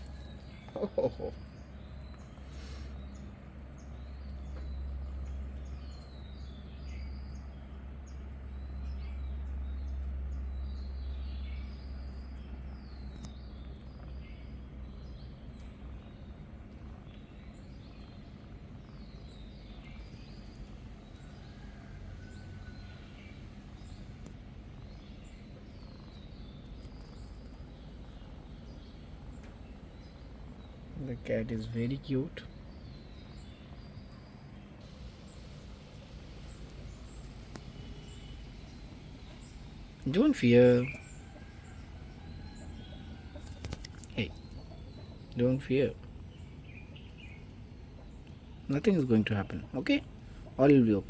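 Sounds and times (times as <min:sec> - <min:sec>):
small birds chirping: 0:00.0 - 0:51.0
low rumble: 0:34.8 - 0:43.2.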